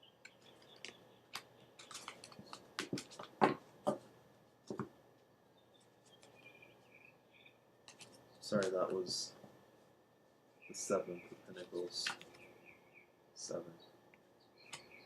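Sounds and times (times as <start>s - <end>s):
cards clicking and tapping: 0.3s - 4.0s, 4.7s - 5.0s, 7.9s - 9.0s.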